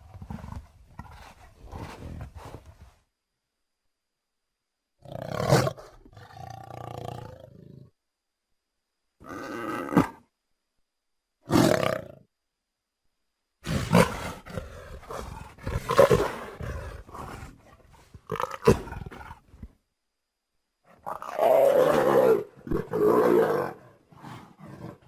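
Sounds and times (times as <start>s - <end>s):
jaguar roaring and growling: 13.6s - 19.4s, 21.0s - 25.0s.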